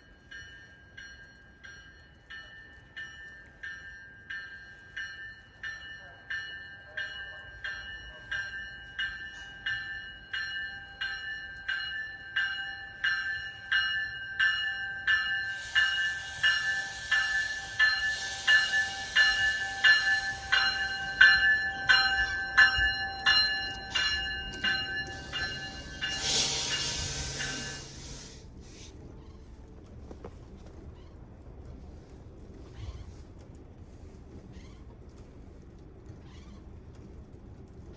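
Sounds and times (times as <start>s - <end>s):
railroad crossing bell ringing: 0.0s - 28.5s
passing train rushing: 13.0s - 29.1s.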